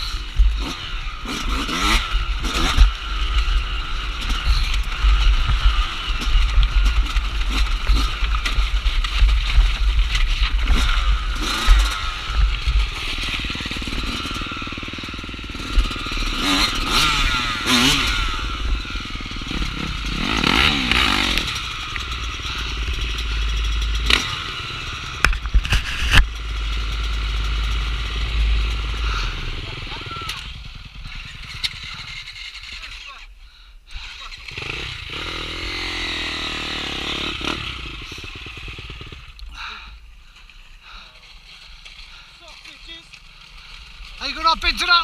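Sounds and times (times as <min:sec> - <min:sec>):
dirt bike engine revving: 0:00.0 - 0:33.3, 0:33.9 - 0:40.0, 0:40.9 - 0:45.0.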